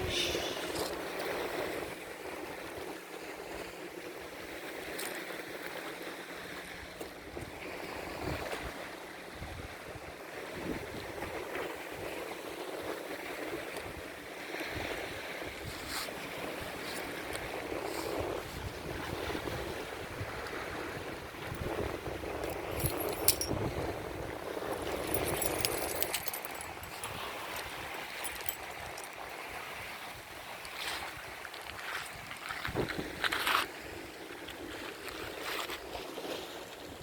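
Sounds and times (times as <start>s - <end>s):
small sea waves washing in: 0.0s - 37.0s
wind gusting on microphone: 14.7s - 34.2s.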